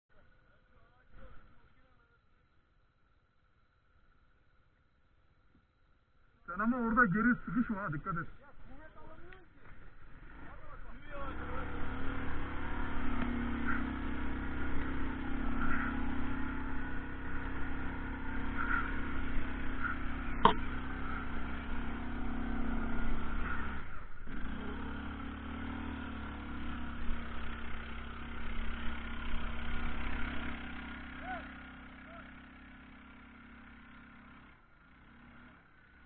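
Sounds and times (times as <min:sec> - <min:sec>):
atv engine running in mud: 0:09.0 - 0:36.0.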